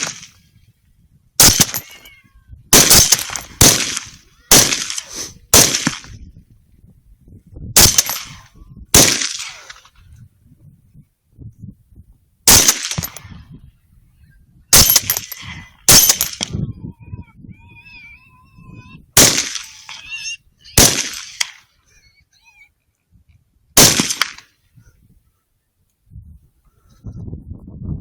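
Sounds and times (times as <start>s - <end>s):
rifle shots: 0.0s - 0.4s, 1.4s - 2.0s, 2.7s - 6.2s, 7.8s - 8.4s, 9.0s - 9.9s, 12.5s - 13.3s, 14.7s - 16.5s, 19.2s - 20.0s, 20.8s - 21.6s, 23.8s - 24.5s.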